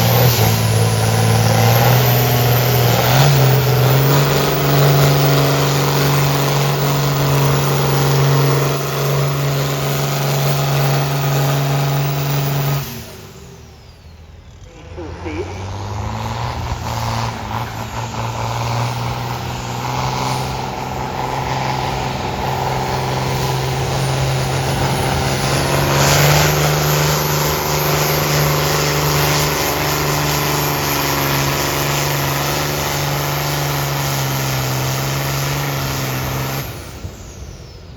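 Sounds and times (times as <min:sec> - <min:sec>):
tractor engine under load: 0:00.0 - 0:37.9.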